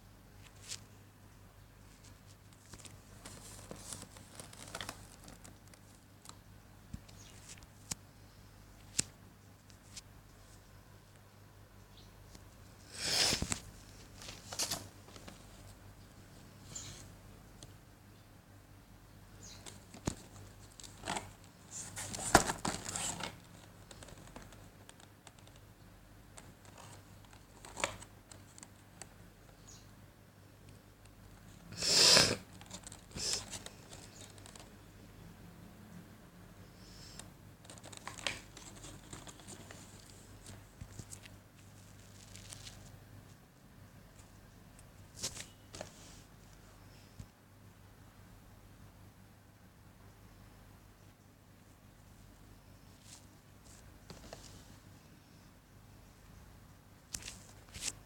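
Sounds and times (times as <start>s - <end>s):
packaging crinkling: 2.6s - 6.0s, 37.6s - 42.9s.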